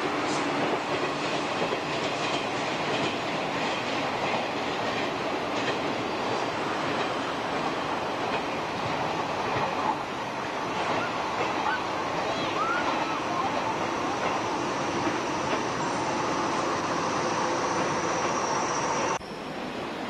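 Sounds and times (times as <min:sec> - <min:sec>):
train wheels rumbling on rails: 0:00.0 - 0:20.0
clacks over rail joints: 0:00.3 - 0:06.0, 0:06.8 - 0:09.7, 0:15.0 - 0:15.7.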